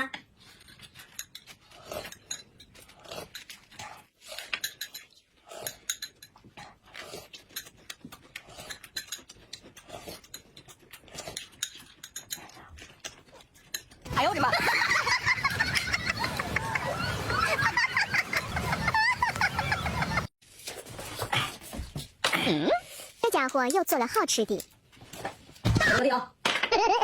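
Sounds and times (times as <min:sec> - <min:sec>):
slurping and chewing: 0:00.2 - 0:20.2.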